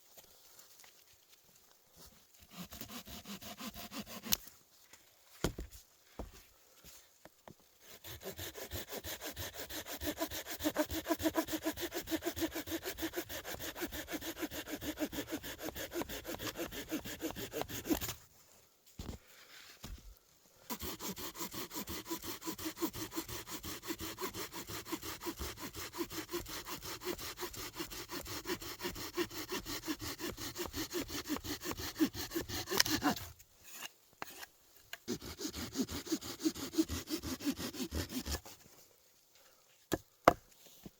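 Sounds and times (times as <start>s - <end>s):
hand saw cutting wood: 2.4s - 4.5s, 7.8s - 18.2s, 20.7s - 38.7s.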